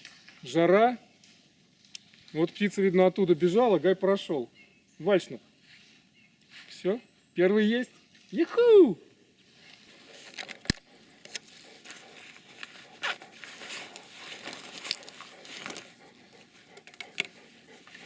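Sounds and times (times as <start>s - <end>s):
dry undergrowth rustling: 9.4s - 18.0s
twigs snapping: 10.1s - 17.5s.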